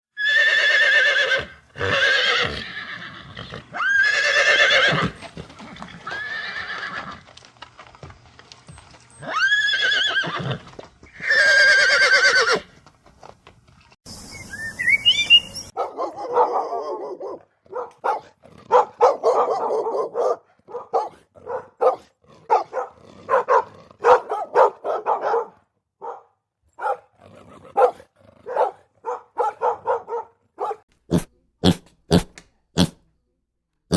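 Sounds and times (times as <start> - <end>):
horse neighing: 0.2 - 7.2, 9.2 - 12.7
dog barking: 15.8 - 30.8.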